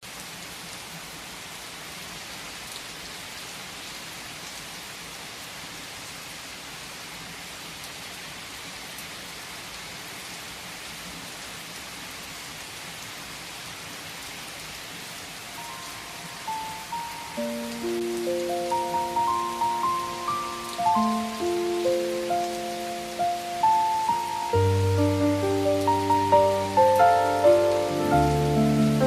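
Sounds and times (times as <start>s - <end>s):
steady rain hiss: 0.0s - 29.0s
raindrops ticking: 15.5s - 29.0s
soft piano notes: 15.5s - 29.0s.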